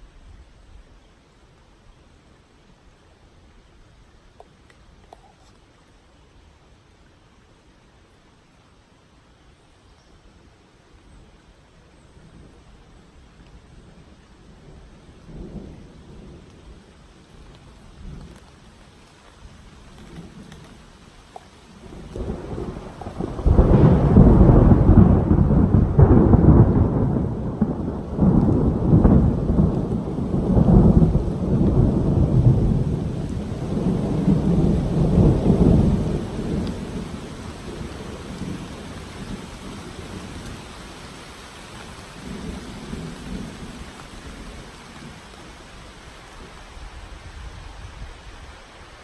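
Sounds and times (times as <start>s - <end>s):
rain hissing: 0.0s - 49.0s
thunder rumbling: 14.5s - 18.8s, 19.7s - 48.1s.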